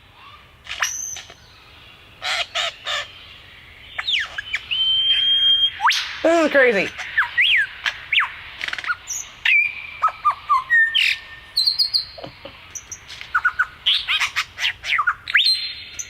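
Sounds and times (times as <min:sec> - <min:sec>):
bird singing mimicked calls: 0:04.0 - 0:09.0.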